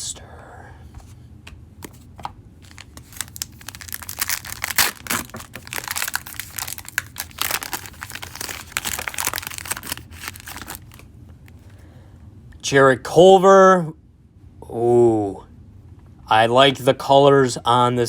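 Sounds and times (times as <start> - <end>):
card pack wrapper tearing: 2.6 - 11.1.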